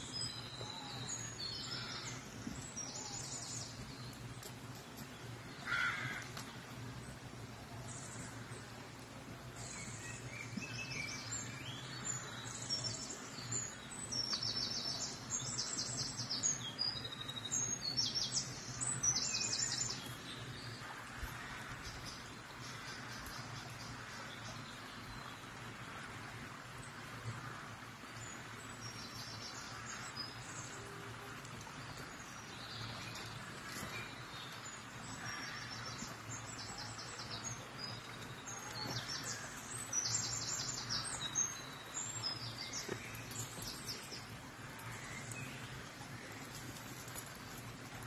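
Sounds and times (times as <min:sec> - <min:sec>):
birds singing trills and chirps: 0:00.0 - 0:07.2, 0:09.4 - 0:25.6, 0:28.0 - 0:48.0.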